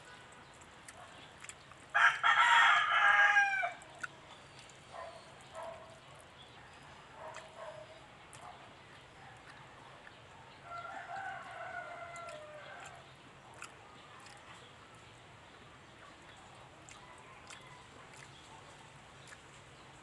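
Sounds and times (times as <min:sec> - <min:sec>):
rooster crowing: 0:02.0 - 0:03.8, 0:10.7 - 0:13.0.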